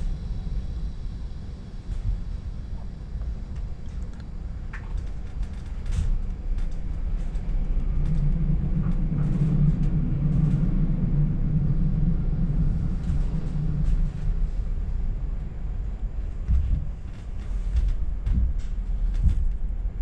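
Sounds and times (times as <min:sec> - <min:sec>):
train interior rumble: 0:00.0 - 0:20.0.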